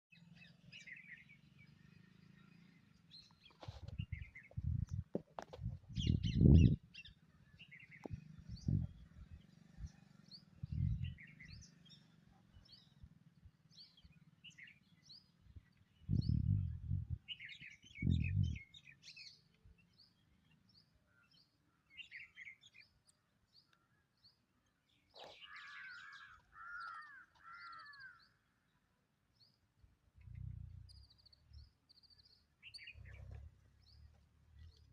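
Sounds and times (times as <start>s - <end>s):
songbirds chirping: 0.1s - 34.9s
low rumbles: 3.8s - 6.9s, 8.0s - 9.9s, 10.6s - 11.7s, 16.0s - 17.3s, 18.0s - 18.6s, 30.1s - 31.8s, 32.9s - 34.9s.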